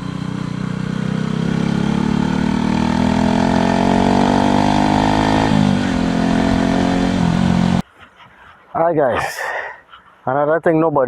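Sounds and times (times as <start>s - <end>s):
motorcycle engine accelerating: 0.0s - 7.8s.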